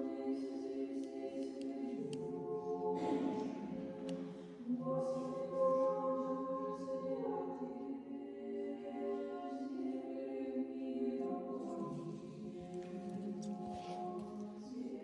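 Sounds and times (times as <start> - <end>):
choir singing chant: 0.0 - 15.0.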